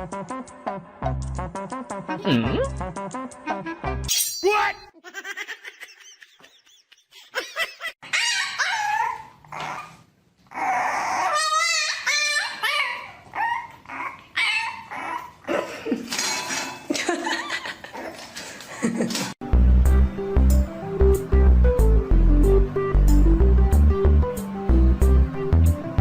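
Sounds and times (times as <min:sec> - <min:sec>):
dog barking and yipping: 0:08.0 - 0:10.0, 0:11.2 - 0:15.4
dog whining: 0:08.0 - 0:15.5.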